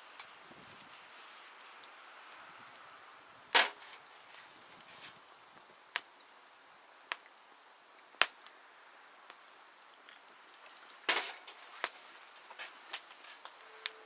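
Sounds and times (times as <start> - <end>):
wood cracking: 10.6 - 13.6.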